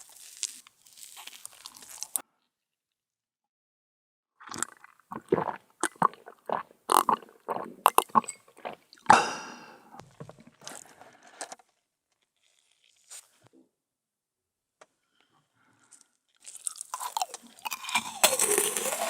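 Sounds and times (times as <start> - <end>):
crunching and biting crisp food: 0.0 - 2.2, 12.2 - 13.4, 15.9 - 19.0.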